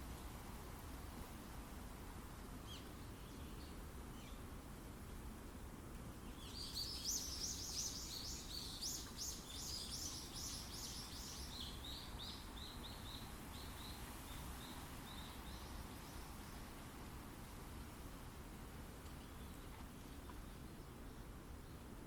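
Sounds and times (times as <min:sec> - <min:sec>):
wind in forest: 0:00.0 - 0:22.0
small bird chirping: 0:06.3 - 0:16.3.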